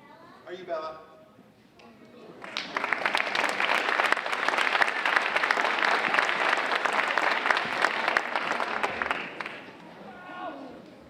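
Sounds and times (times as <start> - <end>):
children clapping: 2.4 - 9.9.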